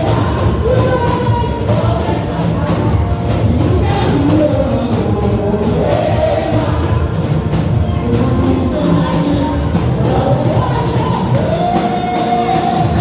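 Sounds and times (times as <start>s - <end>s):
band with drums and bass: 0.0s - 13.0s
singing voices: 0.0s - 13.0s.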